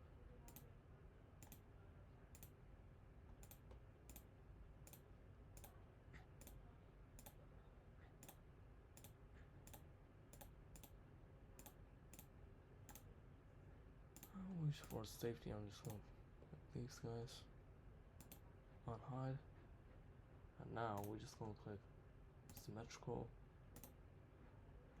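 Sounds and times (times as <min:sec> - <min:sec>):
low background hum: 0:00.0 - 0:25.0
computer mouse clicking: 0:00.5 - 0:00.7, 0:01.4 - 0:01.7, 0:02.3 - 0:02.6, 0:03.4 - 0:06.6, 0:07.2 - 0:07.4, 0:08.2 - 0:11.0, 0:11.6 - 0:13.1, 0:14.2 - 0:15.1, 0:18.2 - 0:18.5, 0:20.9 - 0:21.2, 0:22.5 - 0:22.8, 0:23.8 - 0:24.0.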